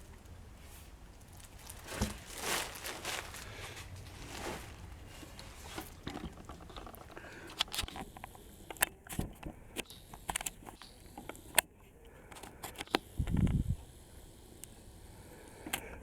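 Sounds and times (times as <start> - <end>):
rustling: 0.0 - 8.1.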